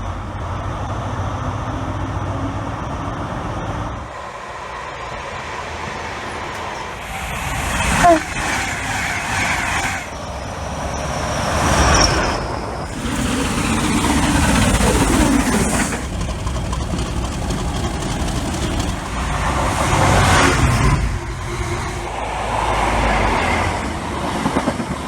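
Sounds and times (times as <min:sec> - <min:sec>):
train wheels rumbling: 0:00.0 - 0:25.0
thin high whine: 0:06.3 - 0:16.2.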